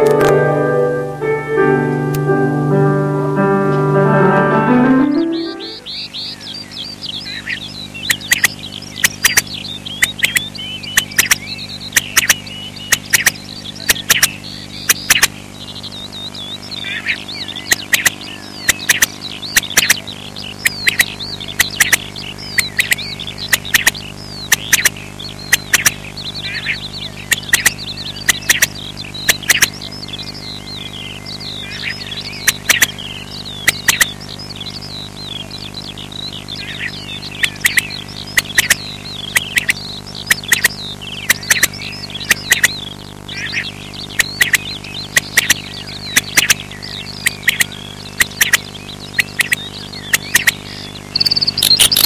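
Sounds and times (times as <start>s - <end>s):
low steady hum: 0.0s - 52.0s
birds chirping and twittering: 4.5s - 52.0s
sharp clicks: 33.7s - 34.1s, 51.2s - 52.0s.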